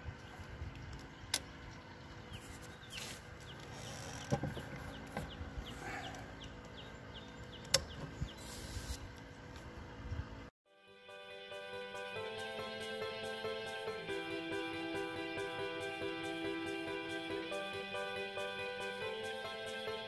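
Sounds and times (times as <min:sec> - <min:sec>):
bird chirping: 0:00.0 - 0:09.5
low background rumble: 0:00.0 - 0:10.5.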